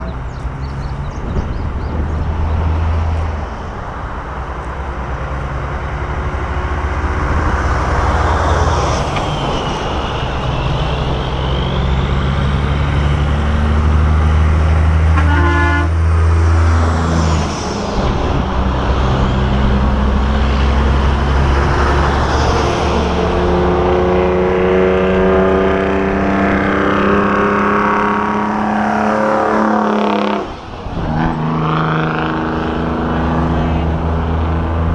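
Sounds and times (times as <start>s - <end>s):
diesel truck engines: 0.0s - 34.9s
truck air horn blasts: 15.1s - 16.1s, 29.1s - 30.5s.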